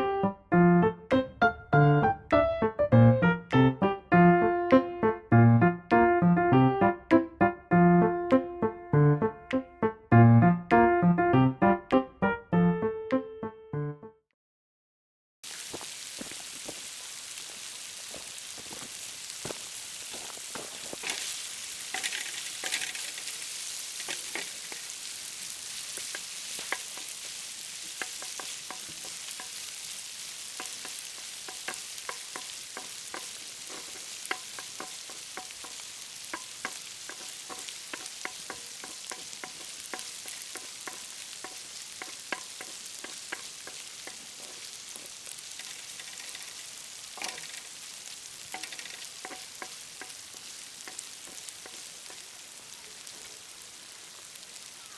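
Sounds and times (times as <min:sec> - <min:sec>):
food sizzling in a pan: 0:15.4 - 0:54.9
utensil scraping and clicking: 0:21.0 - 0:24.9, 0:48.5 - 0:52.2.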